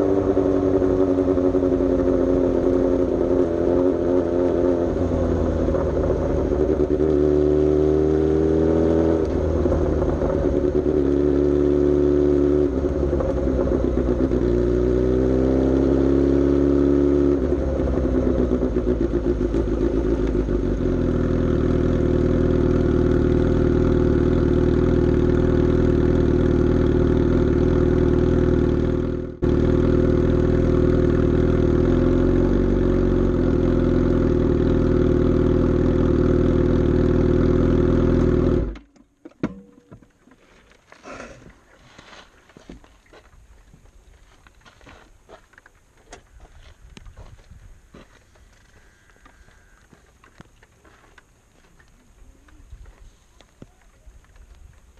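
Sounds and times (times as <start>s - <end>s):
motorcycle engine revving: 0.0s - 38.9s, 47.0s - 50.0s.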